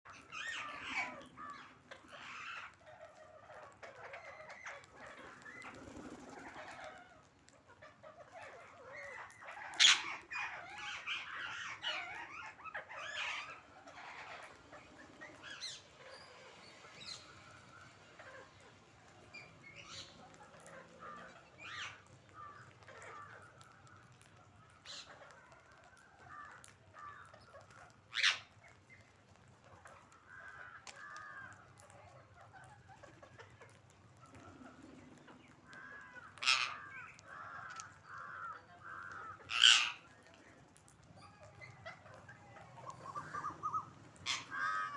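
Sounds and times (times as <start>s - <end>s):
parrots chattering: 0.1s - 23.7s, 32.2s - 40.2s, 41.2s - 44.9s
parrot screeches: 39.5s - 40.0s.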